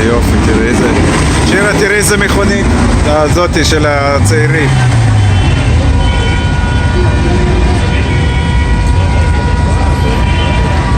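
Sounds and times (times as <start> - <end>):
car engines rumbling: 0.0 - 10.9
faint engine whines: 0.0 - 10.9.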